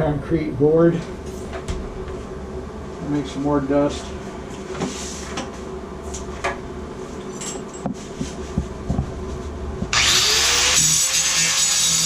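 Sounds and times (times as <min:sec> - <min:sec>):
power cutter cutting tile: 0:09.9 - 0:12.0.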